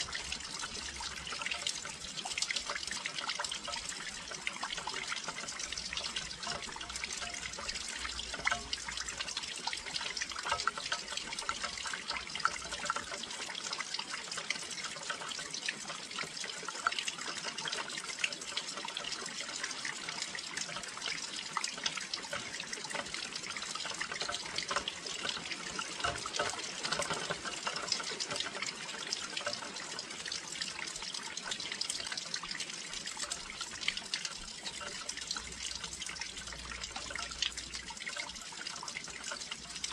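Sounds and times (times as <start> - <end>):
raindrops striking windowsill: 0.0 - 13.6, 14.4 - 30.2.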